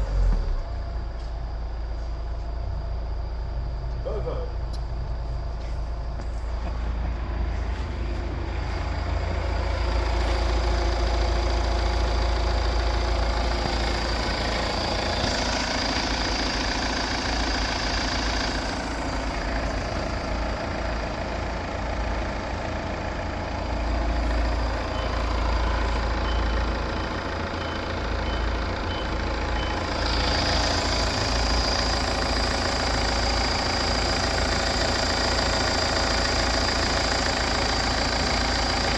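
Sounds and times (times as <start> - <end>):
vehicle engine idling: 0.0 - 38.9.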